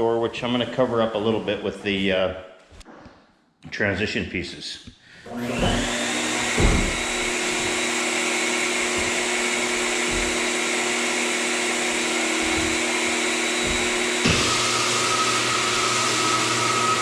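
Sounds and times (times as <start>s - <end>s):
electric motor humming and whining: 5.3s - 17.0s.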